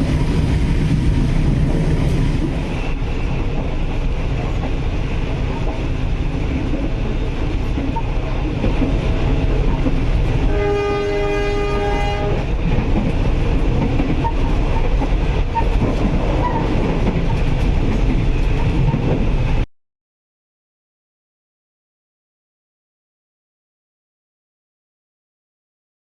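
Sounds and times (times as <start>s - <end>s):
train rumble and wheels clattering: 0.0s - 19.7s
train horn: 10.4s - 12.5s.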